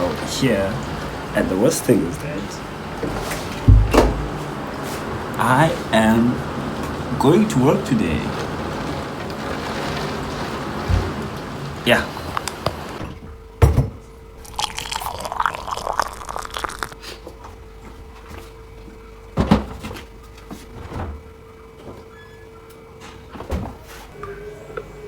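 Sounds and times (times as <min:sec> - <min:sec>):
sharp knocks: 0:03.7 - 0:04.4.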